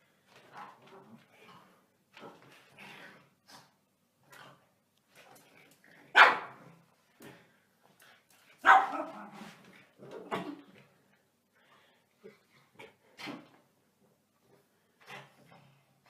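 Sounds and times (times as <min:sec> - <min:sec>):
dog barking: 0:06.1 - 0:06.6, 0:08.6 - 0:09.2.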